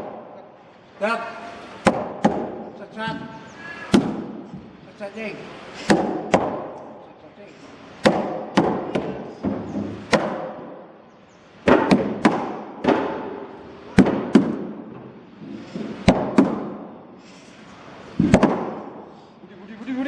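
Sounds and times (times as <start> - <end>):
hand tool striking wood: 1.8 - 3.3, 3.9 - 4.7, 5.8 - 6.9, 8.0 - 10.8, 11.6 - 14.8, 15.8 - 16.8, 18.2 - 19.0.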